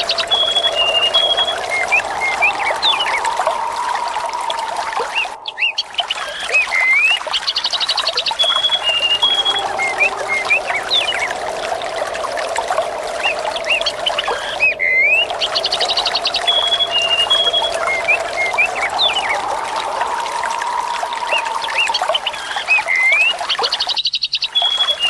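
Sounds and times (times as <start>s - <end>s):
birds calling: 0.0s - 25.0s
water trickling: 0.0s - 25.0s.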